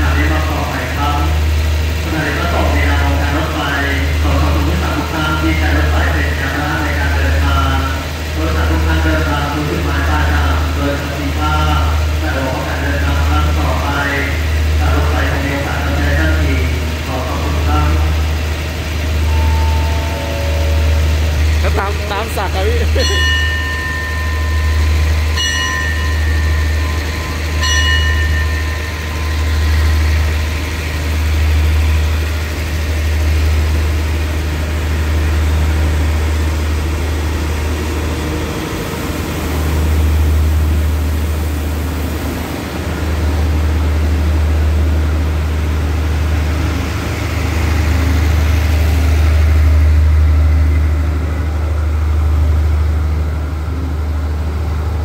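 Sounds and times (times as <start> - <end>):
train coaches rumbling: 0.0 - 55.0
high steady tone: 19.0 - 32.4.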